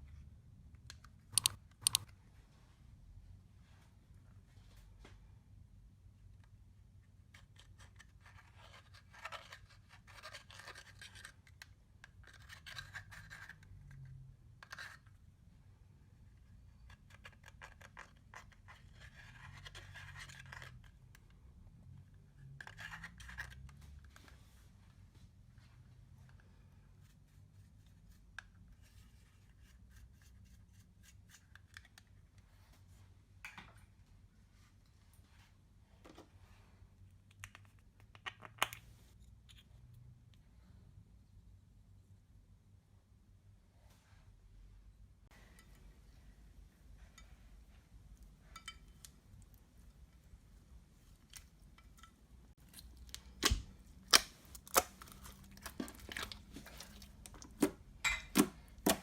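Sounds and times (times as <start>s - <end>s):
small clicks and scrapes of tools: 0.8s - 2.2s, 6.4s - 15.2s, 16.3s - 21.4s, 22.3s - 24.4s, 28.1s - 32.7s, 51.0s - 57.7s.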